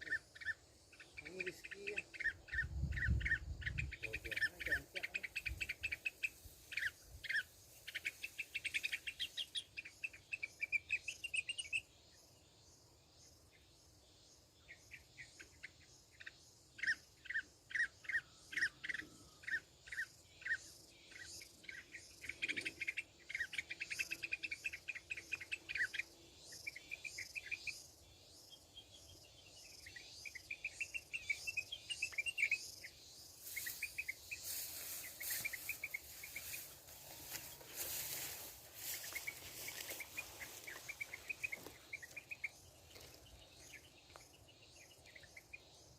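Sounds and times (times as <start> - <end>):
bulbuls chirping and warbling: 0.0 - 11.9, 14.6 - 45.9.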